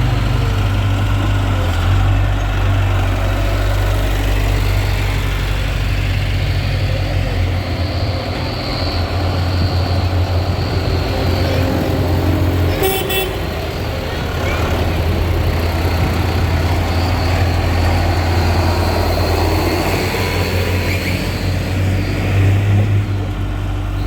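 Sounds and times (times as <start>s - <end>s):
tractor engines droning: 0.0s - 24.0s.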